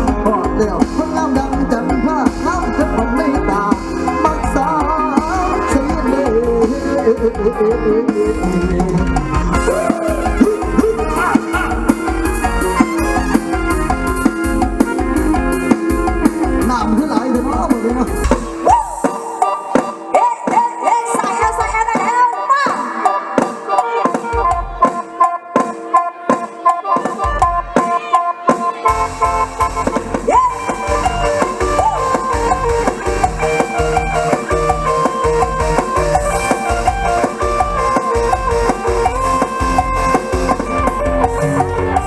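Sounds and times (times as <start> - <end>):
struck and plucked notes: 0.0 - 18.7, 23.3 - 42.0
band with bass and drums: 0.0 - 42.0.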